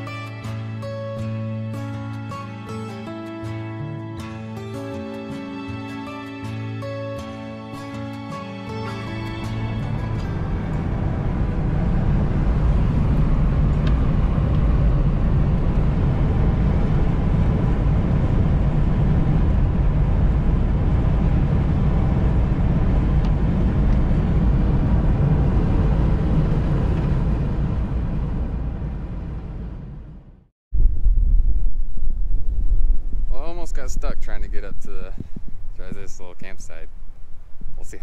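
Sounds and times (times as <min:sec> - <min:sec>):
pickup truck driving: 0:08.0 - 0:30.4.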